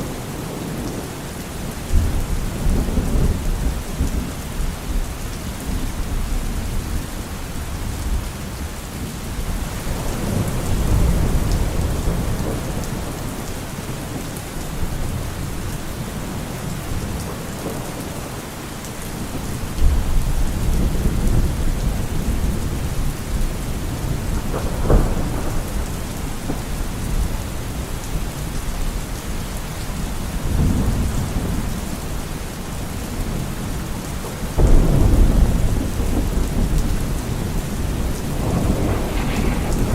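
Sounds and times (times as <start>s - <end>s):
steady rain: 0.0s - 39.9s
rumbles of thunder: 9.5s - 18.4s, 19.2s - 29.0s, 34.6s - 39.9s.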